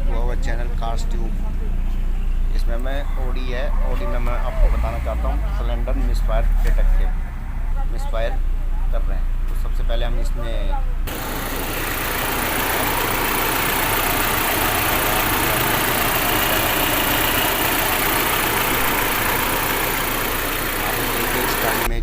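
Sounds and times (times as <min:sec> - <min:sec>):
car engine idling with misfire: 0:11.1 - 0:22.0.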